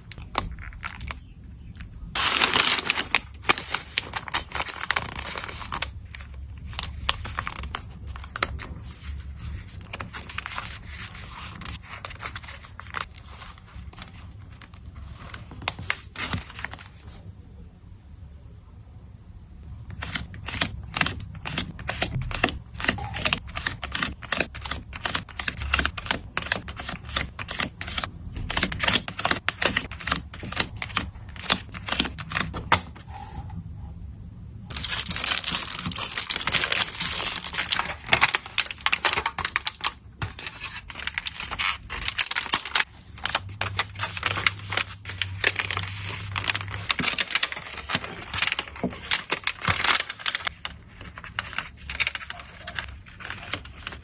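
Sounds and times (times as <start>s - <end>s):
plastic rustling: 0.0s - 17.2s, 34.7s - 54.0s
plastic sleeves clicking and crinkling: 34.7s - 54.0s.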